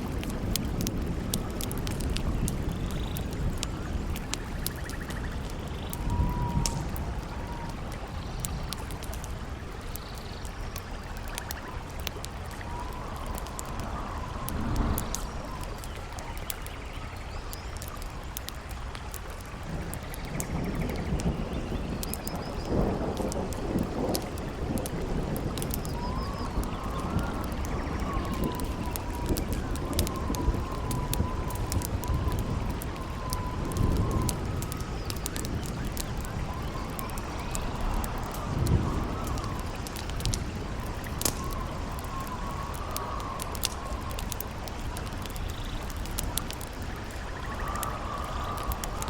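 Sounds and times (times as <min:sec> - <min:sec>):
campfire crackling and popping: 0:00.0 - 0:49.0
howling wind whistle: 0:00.0 - 0:49.0
rush of wind and water: 0:00.0 - 0:49.0.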